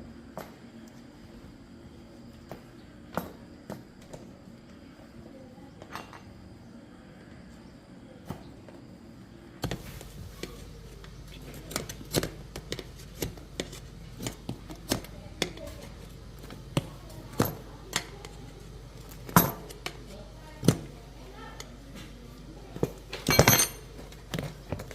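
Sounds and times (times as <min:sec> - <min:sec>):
metal tools clinking together: 0:23.2 - 0:23.9.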